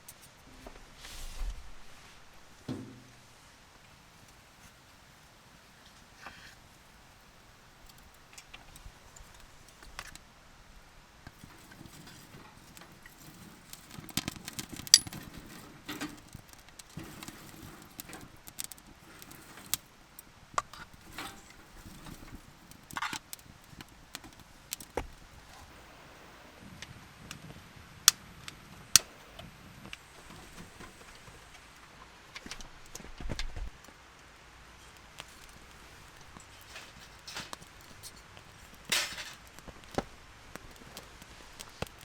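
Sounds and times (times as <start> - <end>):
rustling: 0.0 - 3.5, 11.2 - 26.0, 29.0 - 42.0
camp gear clinking and knocking: 11.3 - 18.5, 36.2 - 40.2.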